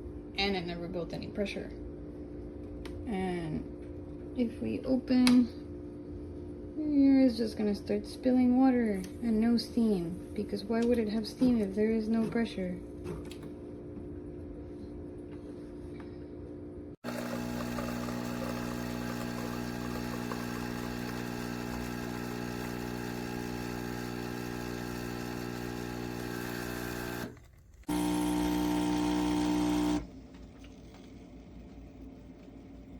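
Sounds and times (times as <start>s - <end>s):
espresso machine pump humming: 17.0s - 32.9s.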